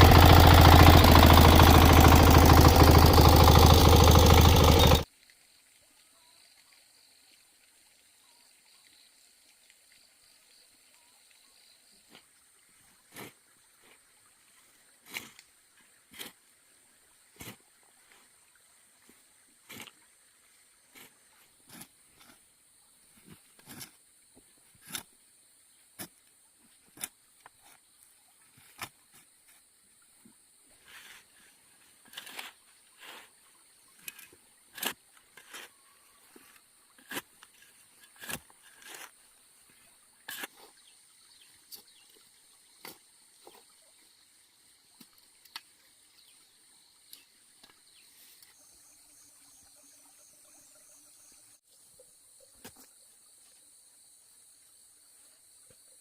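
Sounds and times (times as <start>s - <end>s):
engine running: 0.0s - 5.1s
faint outdoor sounds: 4.8s - 56.0s
faint high-pitched hiss: 5.0s - 34.6s, 39.1s - 56.0s.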